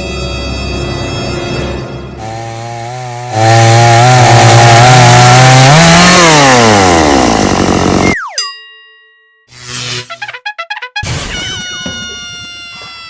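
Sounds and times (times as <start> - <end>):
buzzing motor drone: 2.2 - 8.2
short falling whistle: 8.0 - 8.5.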